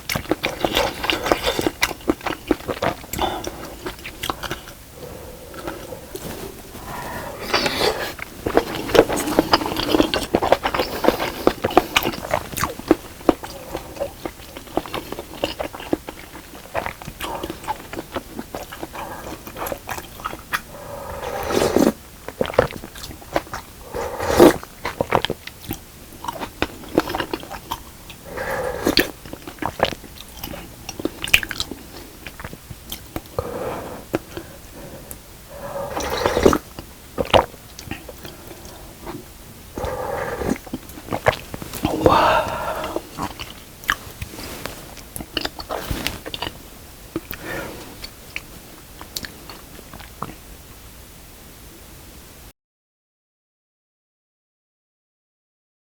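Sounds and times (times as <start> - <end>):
person chewing food: 0.0 - 50.4
wet mouth clicks: 35.1 - 44.4, 45.0 - 50.4.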